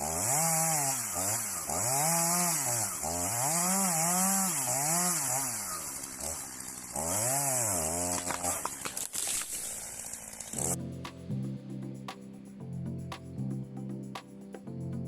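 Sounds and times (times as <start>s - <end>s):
chainsaw revving and cutting wood: 0.0s - 10.8s.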